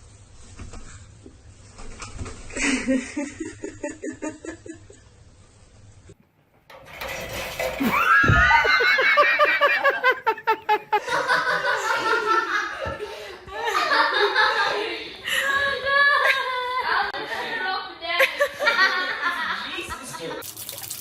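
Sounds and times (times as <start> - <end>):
person laughing: 8.4 - 12.3.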